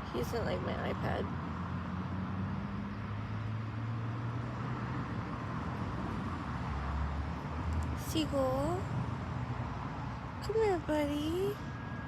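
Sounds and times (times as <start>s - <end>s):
low rumble of vehicle engine: 0.0s - 12.0s.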